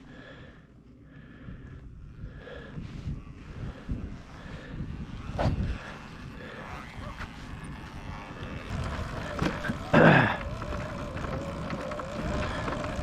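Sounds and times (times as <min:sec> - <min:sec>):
wind and terrain rumble: 0:00.0 - 0:13.0
electric motor whine: 0:04.6 - 0:13.0.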